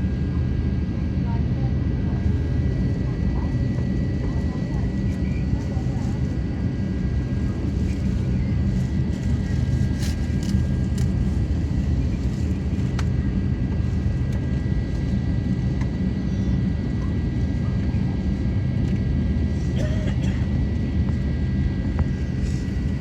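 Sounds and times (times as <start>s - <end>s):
airplane engines rumbling: 0.0s - 23.0s.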